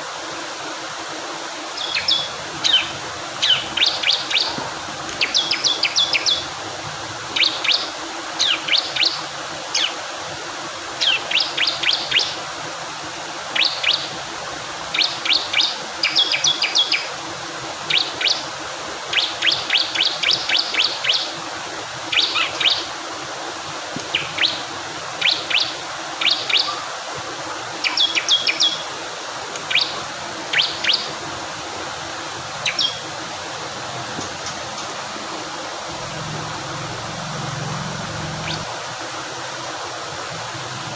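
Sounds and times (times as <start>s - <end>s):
flowing water: 0.0s - 40.9s
bird chirping: 1.8s - 6.5s, 7.4s - 10.0s, 29.7s - 31.1s, 32.6s - 33.1s, 36.1s - 38.7s.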